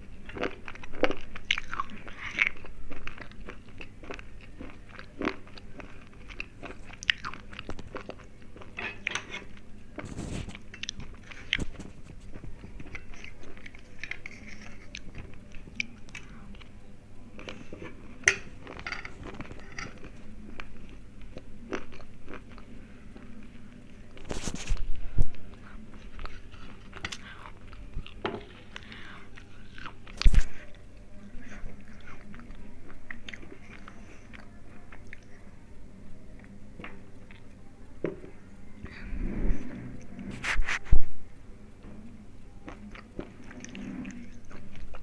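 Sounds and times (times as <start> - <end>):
chewing crunchy slate pencils: 0.2 - 16.7.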